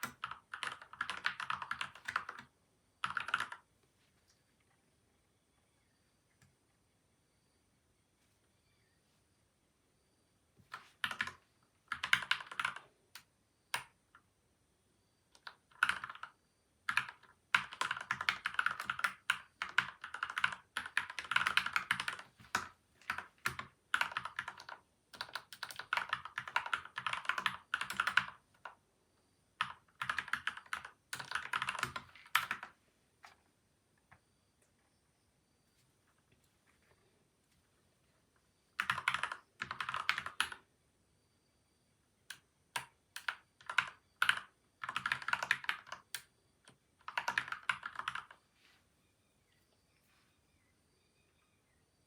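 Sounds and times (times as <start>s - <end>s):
mechanical keyboard typing: 0.0s - 3.7s, 10.7s - 14.0s, 15.3s - 28.8s, 29.6s - 33.4s, 38.8s - 40.6s, 42.3s - 48.4s.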